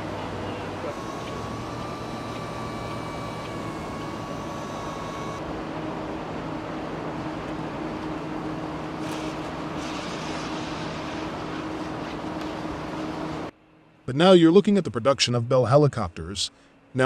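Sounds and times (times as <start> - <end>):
high mechanical whine: 0.0 - 13.6
low steady machine hum: 0.0 - 17.0.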